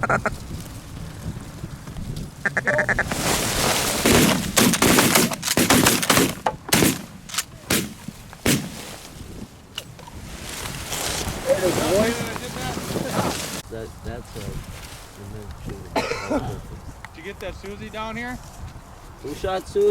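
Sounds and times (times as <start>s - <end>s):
geese honking: 0.0s - 0.4s, 2.4s - 3.2s
shotgun shots: 4.0s - 8.8s.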